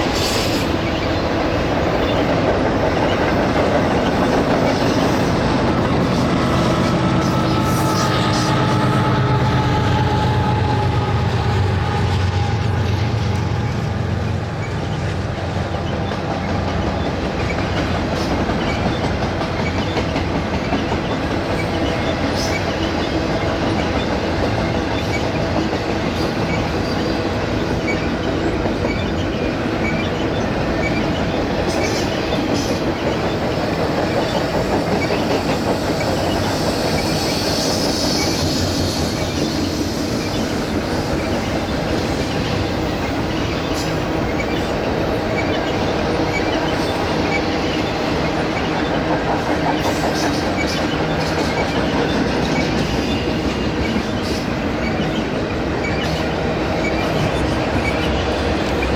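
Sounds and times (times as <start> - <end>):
freight train rolling past: 0.0 - 58.9
high wheel squeal: 3.9 - 14.0, 26.2 - 58.9.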